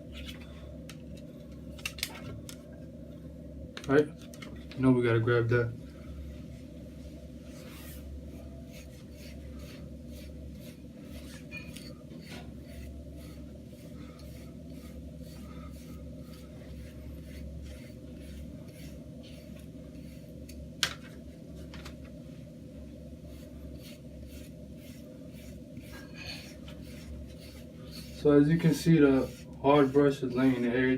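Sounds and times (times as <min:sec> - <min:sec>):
low room hum: 0:00.0 - 0:30.9
brush scratching over hair: 0:07.4 - 0:20.6, 0:23.2 - 0:30.9.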